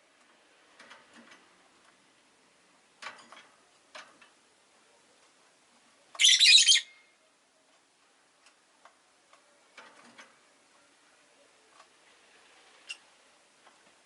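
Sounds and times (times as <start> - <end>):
lovebird harsh chirp: 6.2 - 7.1.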